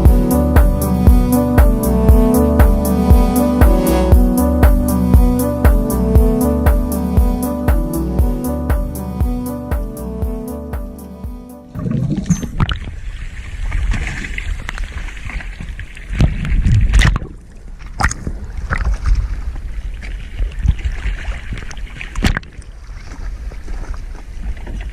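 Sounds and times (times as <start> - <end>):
water noise: 0.0 - 24.9
wind rumbling on microphone: 11.7 - 24.9.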